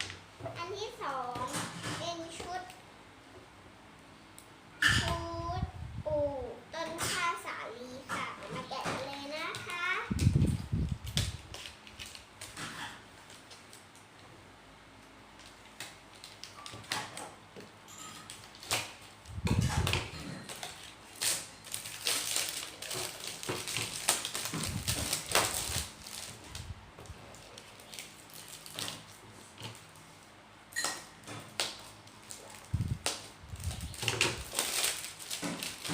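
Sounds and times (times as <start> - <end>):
crinkling rustling: 8.5 - 14.2, 18.2 - 30.3, 31.4 - 35.9.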